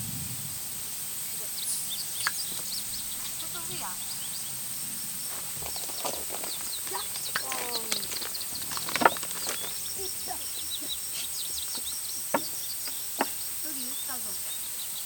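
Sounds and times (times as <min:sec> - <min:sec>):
small birds chirping: 0:00.8 - 0:15.0
falling bird call: 0:01.2 - 0:15.0
sharp cracks: 0:05.2 - 0:10.4.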